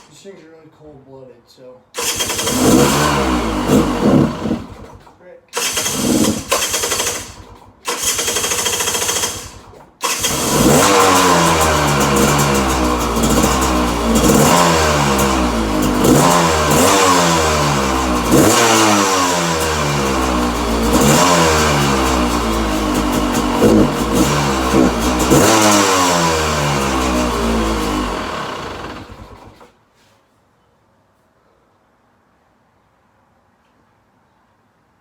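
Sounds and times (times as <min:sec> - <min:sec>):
motorcycle engine revving: 0:02.0 - 0:29.7.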